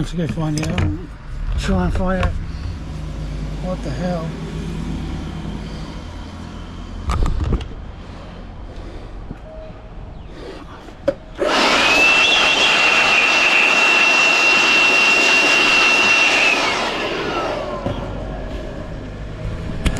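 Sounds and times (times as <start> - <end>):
electric chainsaw whining: 11.4 - 19.8.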